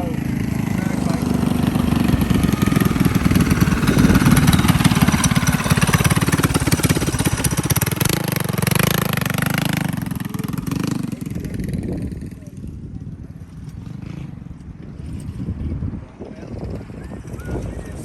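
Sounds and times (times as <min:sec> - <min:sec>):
mini bike engine running: 0:00.0 - 0:18.0.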